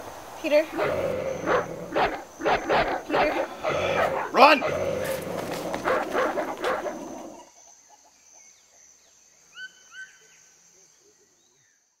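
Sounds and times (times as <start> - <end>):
high insect drone: 0.0 - 9.6
animal barking: 0.7 - 7.5.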